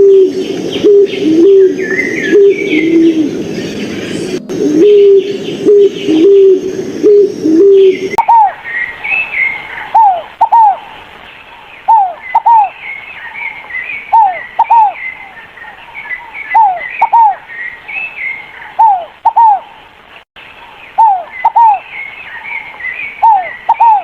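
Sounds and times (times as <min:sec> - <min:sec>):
dove cooing: 0:00.0 - 0:08.6, 0:09.8 - 0:10.8, 0:11.9 - 0:12.7, 0:14.1 - 0:15.0, 0:16.6 - 0:17.4, 0:18.8 - 0:19.6, 0:21.0 - 0:21.8, 0:23.2 - 0:24.0
bird giving downward-sliding notes: 0:00.0 - 0:10.9, 0:14.1 - 0:15.4
birds chirping: 0:00.0 - 0:24.0.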